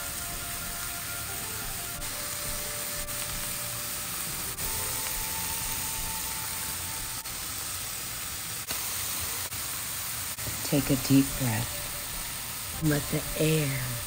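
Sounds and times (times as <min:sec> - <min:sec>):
soft background music: 0:00.0 - 0:08.0, 0:10.5 - 0:14.0
vegetables sizzling in a frying pan: 0:00.0 - 0:14.0.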